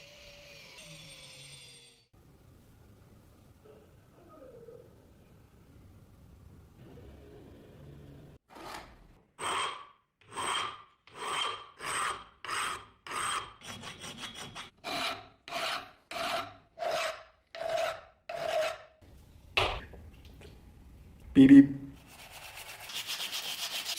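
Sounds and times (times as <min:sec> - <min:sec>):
file rasping on steel: 0:09.4 - 0:19.0.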